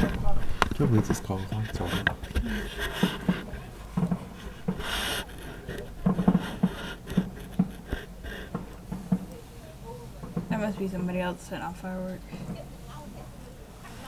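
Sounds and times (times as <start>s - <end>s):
distant fireworks popping: 0.0s - 14.0s
firework hiss: 2.5s - 10.6s.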